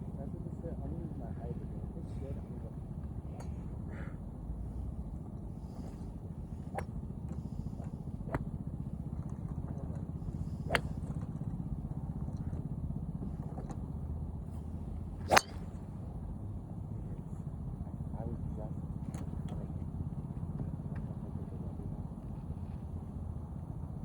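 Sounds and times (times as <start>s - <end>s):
steady low rumble: 0.0s - 24.0s
golf club striking ball: 10.2s - 11.6s, 14.7s - 16.2s.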